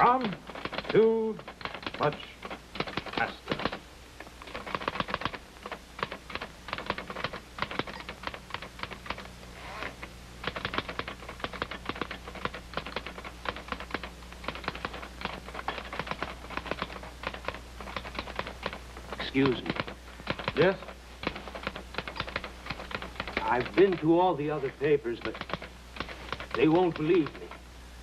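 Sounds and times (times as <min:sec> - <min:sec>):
manual typewriter keystrokes: 0:00.0 - 0:03.8, 0:04.4 - 0:09.3, 0:10.4 - 0:27.6.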